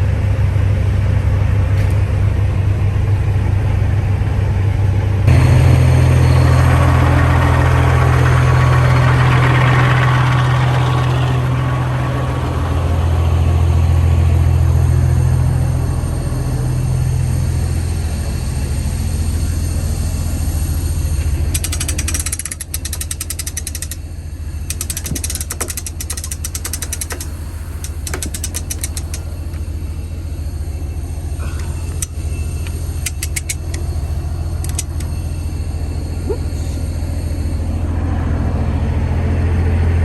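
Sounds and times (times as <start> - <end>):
diesel truck engine humming: 0.0 - 40.0
rapid fine clicking: 5.3 - 13.6, 21.5 - 30.2, 31.6 - 35.2.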